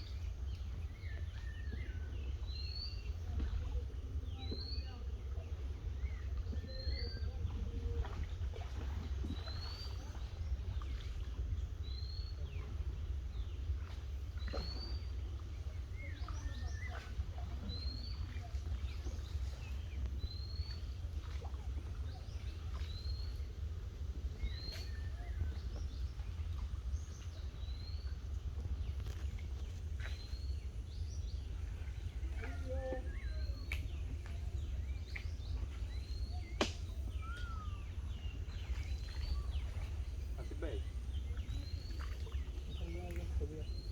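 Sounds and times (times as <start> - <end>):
steady low rumble: 0.0 - 43.9
wild birds calling: 14.4 - 43.9.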